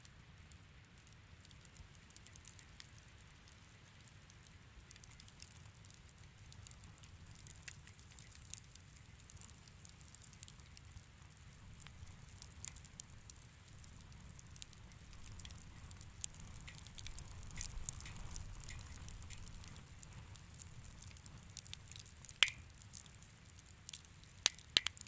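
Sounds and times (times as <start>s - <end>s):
wood fire crackling faintly: 0.0s - 25.0s.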